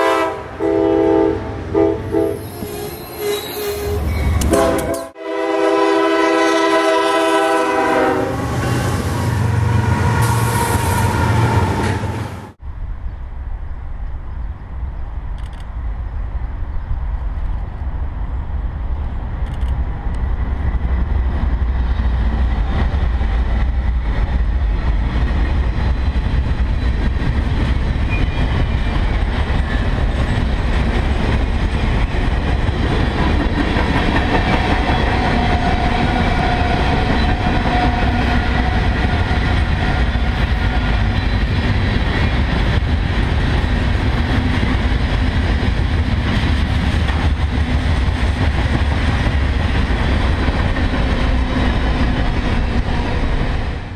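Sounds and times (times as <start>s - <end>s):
freight train rolling past: 0.0s - 53.9s
steel wheels clattering on rail: 22.1s - 53.4s.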